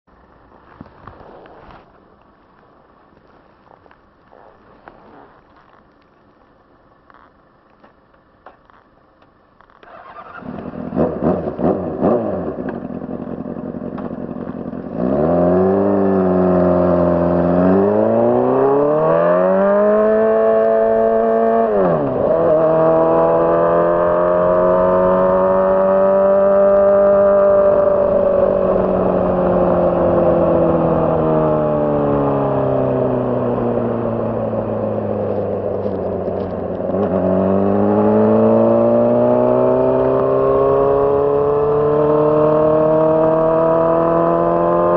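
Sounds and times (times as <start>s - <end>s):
motorcycle engine revving: 9.6s - 44.9s.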